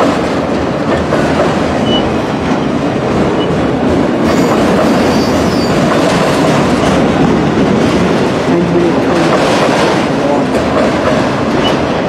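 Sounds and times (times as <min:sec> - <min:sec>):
freight train wheels rumbling: 0:00.0 - 0:12.0
faint high wheel squeals: 0:04.3 - 0:05.8.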